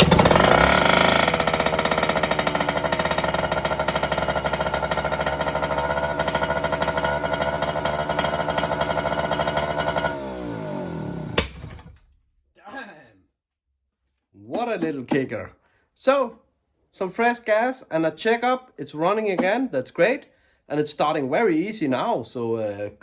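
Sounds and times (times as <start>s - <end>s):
outboard motor running: 0.0s - 11.9s.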